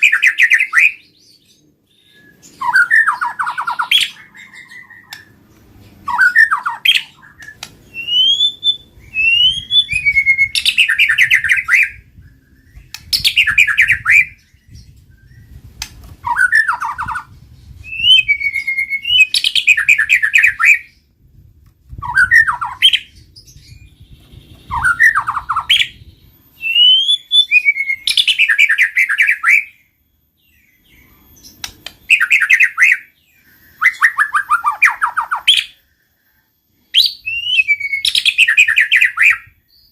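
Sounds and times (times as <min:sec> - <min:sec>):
songbird whistling and trilling: 0:00.0 - 0:21.2, 0:21.9 - 0:39.9.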